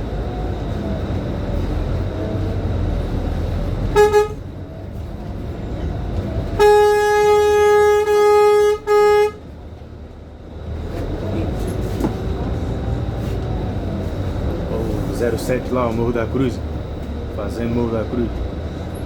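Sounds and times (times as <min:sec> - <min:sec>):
bus engine rumble: 0:00.0 - 0:19.0
road noise: 0:00.0 - 0:19.0
vehicle horn honking: 0:03.9 - 0:04.4, 0:06.6 - 0:09.4.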